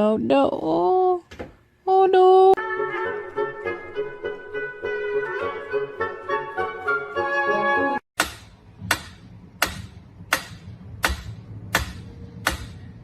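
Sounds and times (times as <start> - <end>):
music: 2.6 - 8.0.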